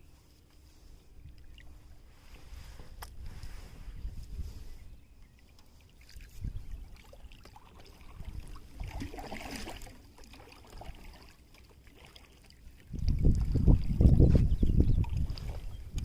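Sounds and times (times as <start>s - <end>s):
water lapping against hull: 0.0s - 16.0s
wind buffeting microphone: 2.5s - 5.0s, 6.2s - 7.0s, 8.0s - 9.2s, 12.9s - 16.0s.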